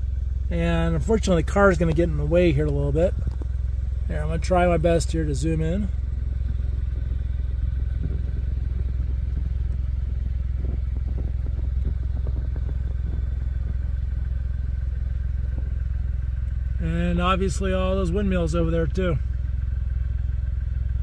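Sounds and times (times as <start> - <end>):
car engine idling: 0.0 - 21.0
faint rustling: 6.3 - 16.8.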